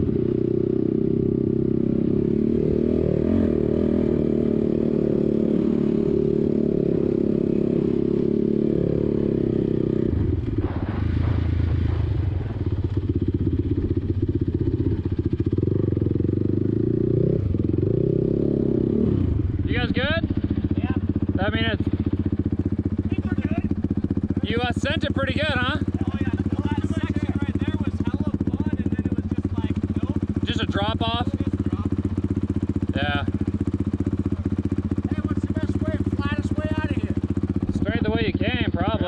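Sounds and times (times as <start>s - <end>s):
atv engine running: 0.0s - 39.0s.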